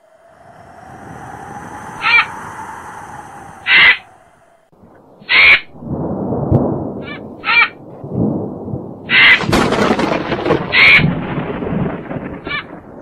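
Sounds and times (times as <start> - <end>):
cartoon bird squawking: 5.3 - 5.7, 9.1 - 9.5
rumbling crashing noise: 9.4 - 13.0.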